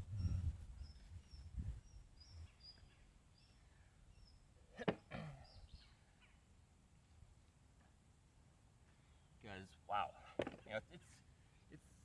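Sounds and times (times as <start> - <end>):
small bird chirping: 0.0 - 4.4.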